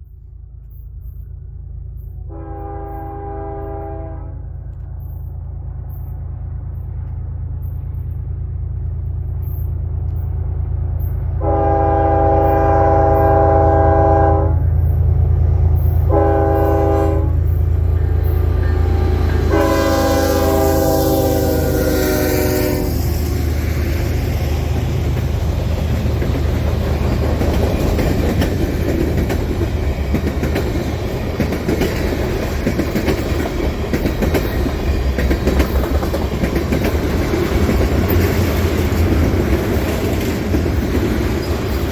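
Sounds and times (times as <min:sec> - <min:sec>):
diesel locomotives rumbling: 0:00.0 - 0:41.9
train air horn blasts: 0:02.2 - 0:05.1, 0:11.4 - 0:15.1, 0:15.8 - 0:23.3.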